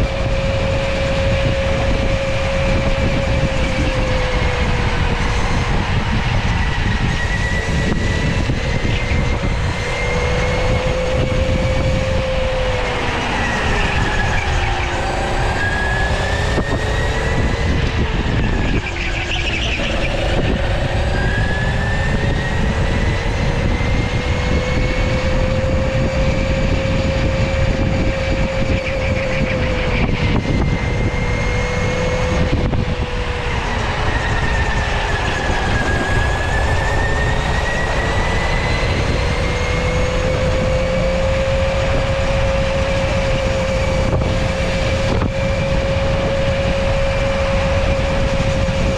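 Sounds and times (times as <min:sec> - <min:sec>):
electric go-kart motor whining: 0:00.0 - 0:48.9
low rumbling noise: 0:00.0 - 0:48.9.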